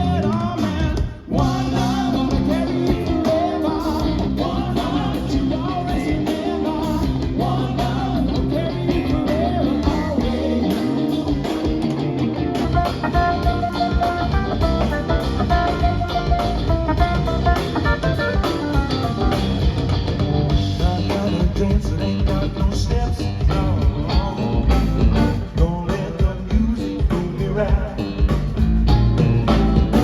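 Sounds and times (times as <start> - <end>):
drum kit: 0.0 - 30.0
electric guitar: 0.0 - 30.0.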